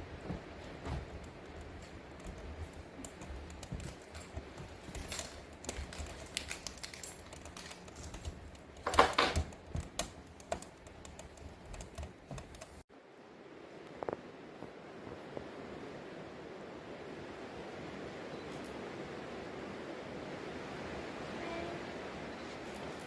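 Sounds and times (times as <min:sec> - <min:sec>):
light clicks and taps: 0:00.2 - 0:12.8
clatter of knocks: 0:03.6 - 0:12.8.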